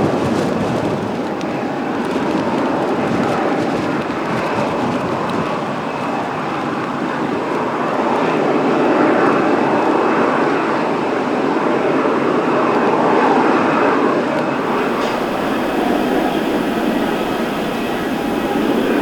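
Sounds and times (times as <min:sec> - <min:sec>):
jet engines rushing: 0:14.5 - 0:19.0
wind buffeting microphone: 0:14.6 - 0:19.0.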